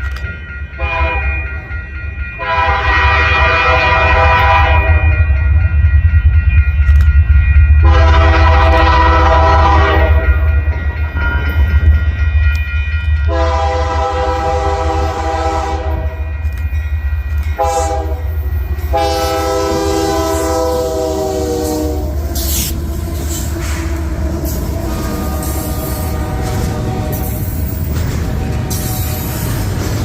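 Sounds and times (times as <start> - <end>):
passing train rumble: 0.0 - 30.0
locomotive air horn blasts: 0.8 - 1.4, 2.4 - 5.1, 7.8 - 10.3, 13.3 - 16.3, 17.6 - 18.3, 18.9 - 27.5.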